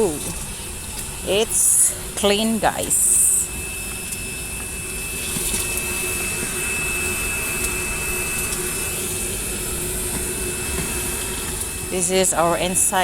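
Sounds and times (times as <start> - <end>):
vacuum motor whining: 0.0 - 13.0.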